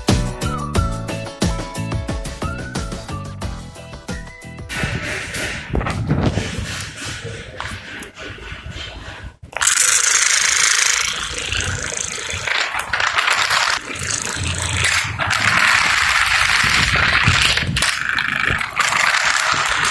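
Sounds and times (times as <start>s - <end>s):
mechanical rattling and clicking: 9.5s - 19.9s.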